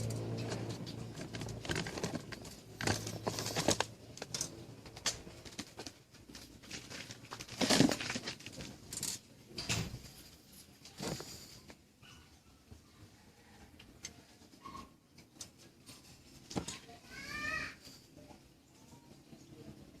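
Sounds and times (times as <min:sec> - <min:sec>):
small objects clicking and tapping: 0:00.0 - 0:09.2.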